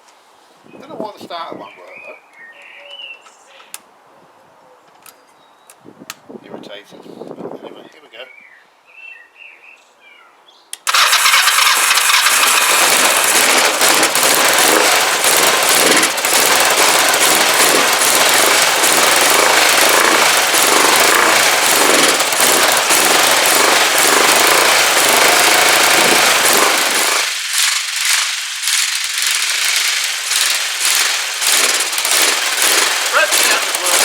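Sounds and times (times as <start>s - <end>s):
motorcycle engine starting and running: 10.8s - 34.0s.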